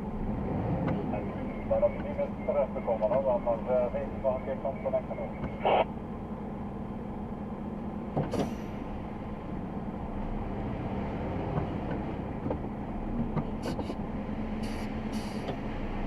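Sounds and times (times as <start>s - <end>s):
truck diesel engine running: 0.0s - 16.0s
short knocks with brief hiss: 8.2s - 8.7s.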